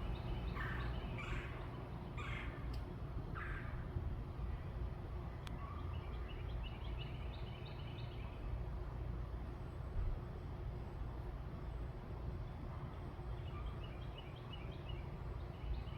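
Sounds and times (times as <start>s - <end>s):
steady low rumble: 0.0s - 5.5s.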